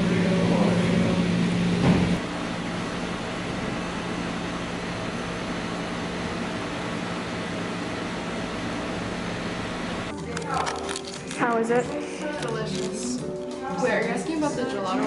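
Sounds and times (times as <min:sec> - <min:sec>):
mechanical hum and hiss: 0:00.0 - 0:10.7.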